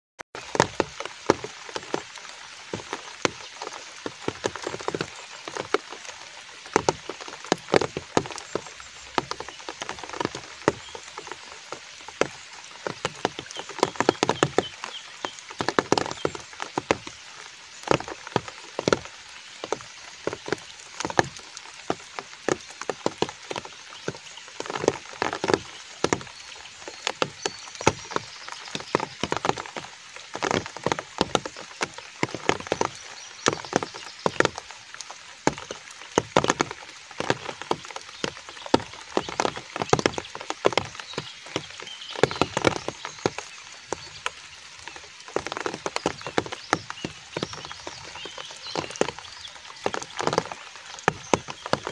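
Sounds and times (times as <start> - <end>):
rain hiss: 0.4 - 51.9
raindrops tapping: 0.4 - 51.9.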